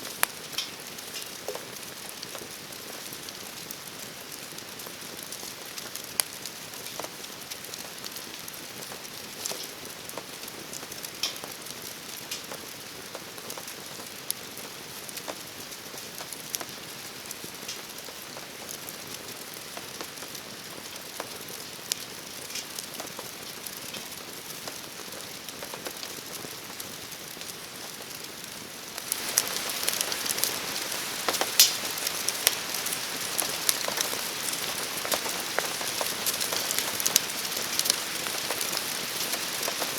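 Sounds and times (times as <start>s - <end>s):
crackling campfire: 0.0s - 39.9s
steady rain falling: 0.0s - 39.9s
drops ticking and popping: 29.0s - 39.9s.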